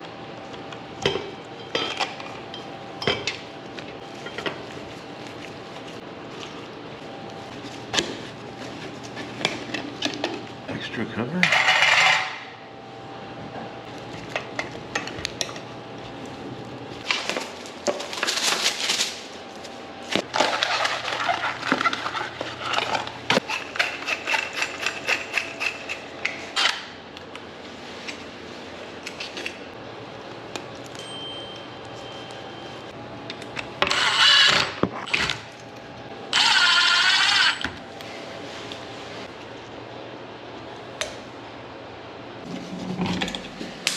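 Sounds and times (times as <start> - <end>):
hardware and tools clinking: 30.8 - 32.6.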